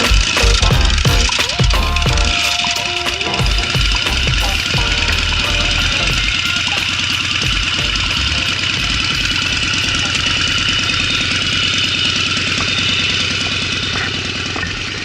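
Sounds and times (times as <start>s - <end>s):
motorcycle engine idling: 3.4s - 15.0s.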